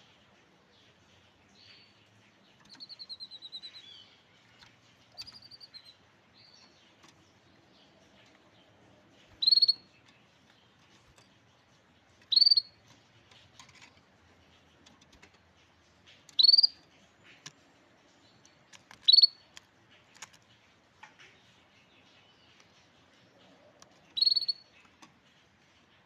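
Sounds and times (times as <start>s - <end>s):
songbird call notes: 2.6s - 4.4s, 5.1s - 6.9s, 9.4s - 10.0s, 12.3s - 12.8s, 16.4s - 17.4s, 19.0s - 19.5s, 21.8s - 24.8s.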